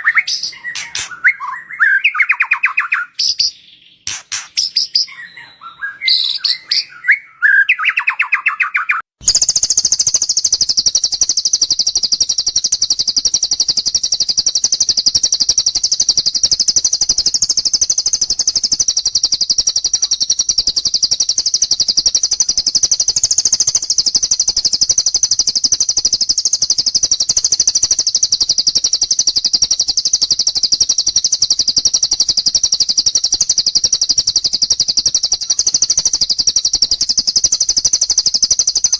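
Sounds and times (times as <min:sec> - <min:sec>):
lovebird fast rattling trill: 0:00.0 - 0:05.5, 0:09.2 - 0:38.9
bird chirps and whistles: 0:00.0 - 0:38.9.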